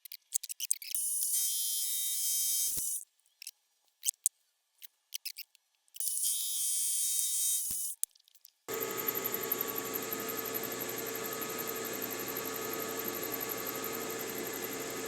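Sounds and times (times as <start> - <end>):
milling cutter whining through metal: 8.7 - 15.0.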